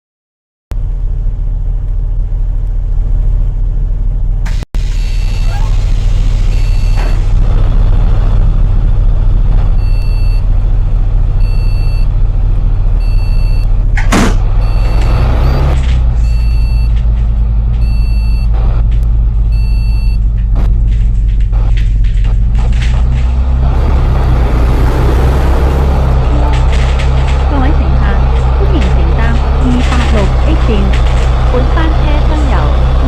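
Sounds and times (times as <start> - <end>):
bus engine idling: 0.8 - 33.0
two-tone warning beeper: 4.8 - 7.3, 9.8 - 10.4, 11.4 - 12.1, 13.0 - 13.7, 14.6 - 17.0, 17.8 - 18.5, 19.5 - 20.2, 26.1 - 33.0.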